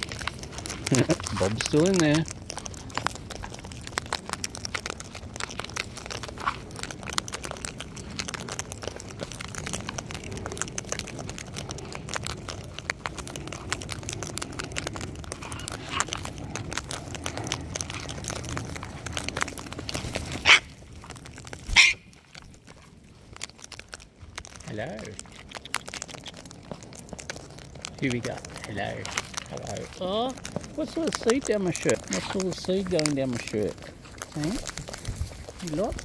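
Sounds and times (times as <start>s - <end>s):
cockatoos crunching seed: 0.0s - 36.0s
cockatoo harsh screeches: 21.7s - 22.1s.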